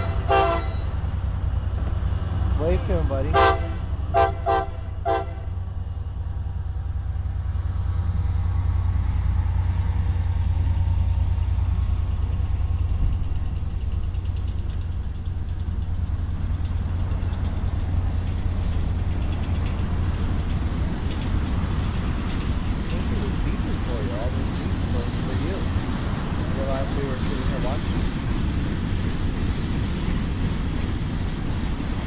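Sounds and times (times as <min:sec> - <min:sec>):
diesel locomotive rumble: 0:00.0 - 0:32.0
freight cars rolling by: 0:00.0 - 0:32.0
wheels clicking over rail joints: 0:11.2 - 0:32.0.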